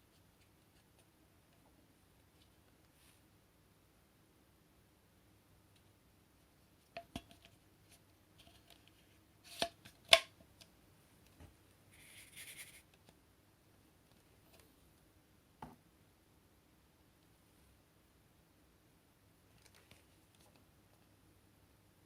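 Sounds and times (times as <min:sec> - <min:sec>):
scratchy rustle: 0:11.9 - 0:12.9.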